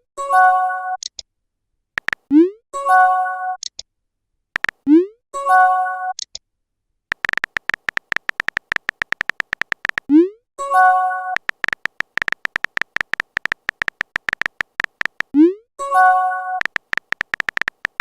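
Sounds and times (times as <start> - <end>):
phone keyboard typing clicks: 2.0 - 2.3, 4.6 - 4.8, 7.1 - 10.1, 11.4 - 15.4, 16.6 - 18.0.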